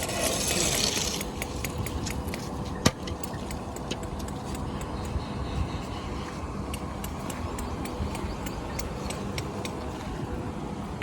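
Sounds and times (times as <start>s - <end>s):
scraping hiss: 0.0s - 1.5s
engine rumble: 0.0s - 11.0s
light irregular clicks and knocks: 1.2s - 5.2s, 6.6s - 10.2s.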